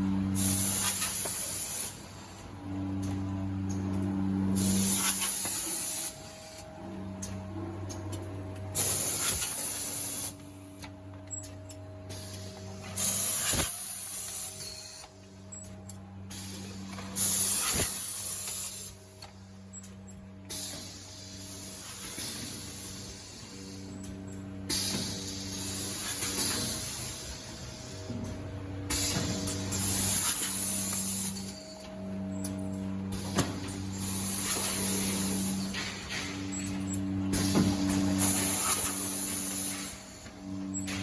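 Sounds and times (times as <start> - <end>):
machine hum: 0.0 - 41.0
loud hiss bursts: 13.0 - 14.8, 17.2 - 18.9.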